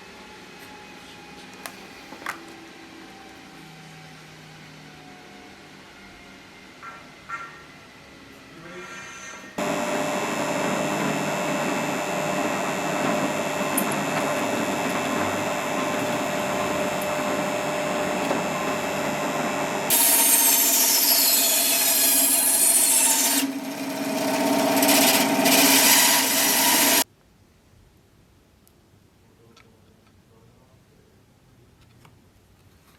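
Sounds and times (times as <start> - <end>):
electric power tool running: 9.6 - 27.0.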